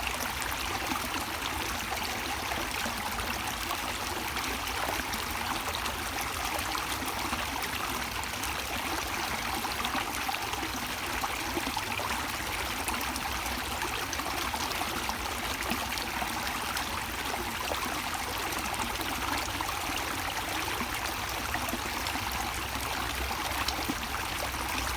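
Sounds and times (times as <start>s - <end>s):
stream flowing and splashing: 0.0s - 24.9s.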